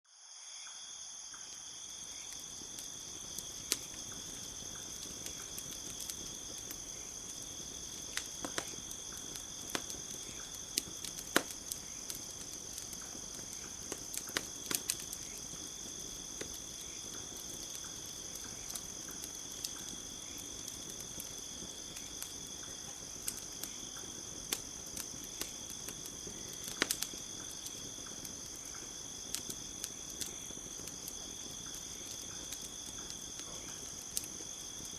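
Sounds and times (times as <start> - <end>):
crickets chirping: 0.1 - 34.9
campfire crackling and popping: 1.4 - 34.9.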